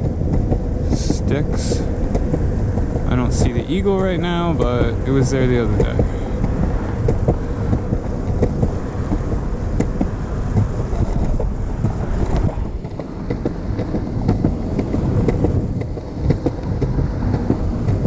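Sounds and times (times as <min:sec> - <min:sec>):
wheels rolling over rough pavement: 0:00.0 - 0:18.0
wind on microphone: 0:00.0 - 0:18.0.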